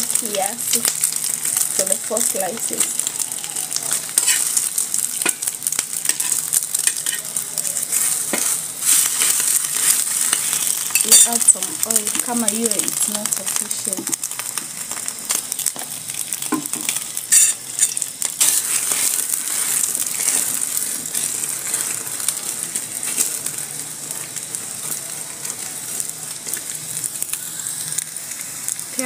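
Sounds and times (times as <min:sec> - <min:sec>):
bread frying in hot oil: 0:00.0 - 0:29.0
metal spoon pressing in pan: 0:06.0 - 0:07.2.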